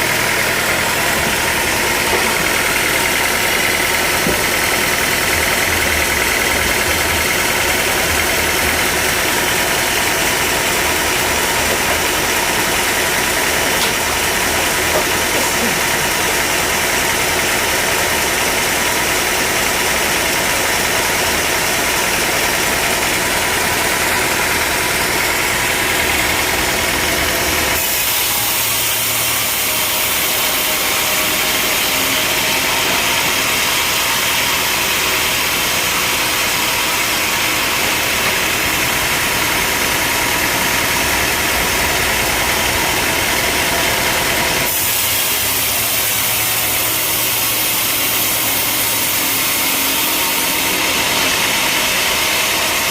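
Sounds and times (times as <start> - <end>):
engine-driven sawmill running: 0.0 - 52.9.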